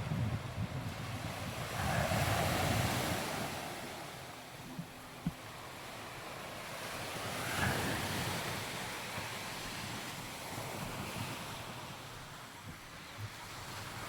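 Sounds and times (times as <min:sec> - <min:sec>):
wind noise on microphone: 0:00.0 - 0:03.8.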